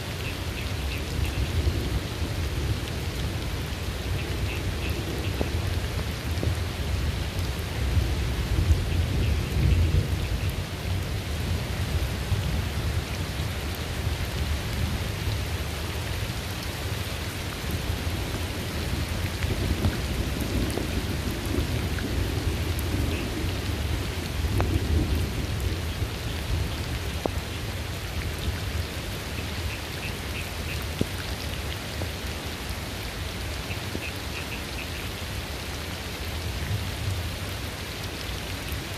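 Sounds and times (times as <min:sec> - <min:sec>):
steady rain: 0:00.0 - 0:38.9
low rolling thunder: 0:18.0 - 0:27.0.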